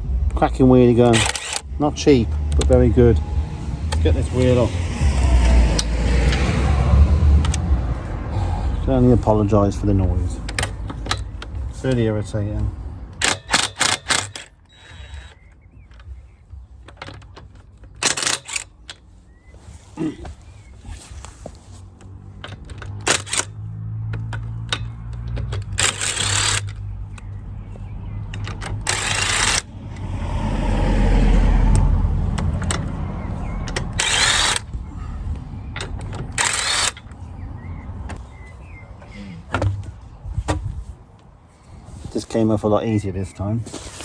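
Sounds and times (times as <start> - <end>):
impact wrench hammering: 13.2 - 15.5, 33.7 - 34.7.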